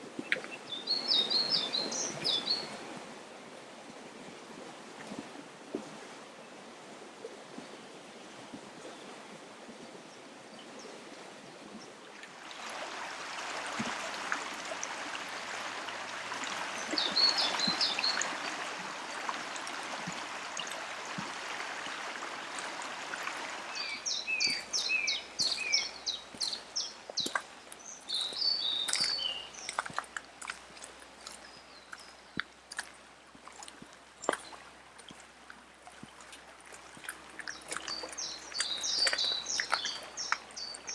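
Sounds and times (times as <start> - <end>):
river water running and bubbling: 0.0 - 40.9
small birds chirping: 16.8 - 18.6, 23.7 - 30.0, 31.2 - 32.5, 37.2 - 40.9.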